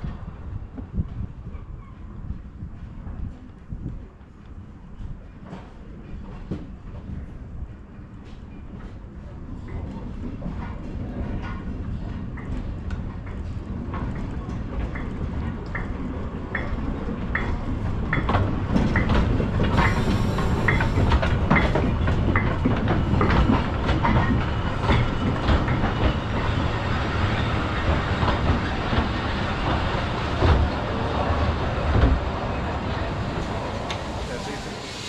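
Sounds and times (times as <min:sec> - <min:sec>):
steam train rumble: 0:00.0 - 0:35.0
steam hiss: 0:19.7 - 0:21.2, 0:33.4 - 0:35.0.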